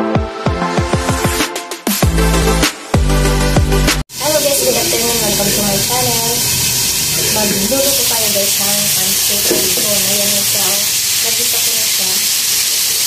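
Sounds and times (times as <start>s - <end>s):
food sizzling in oil: 4.1s - 13.0s.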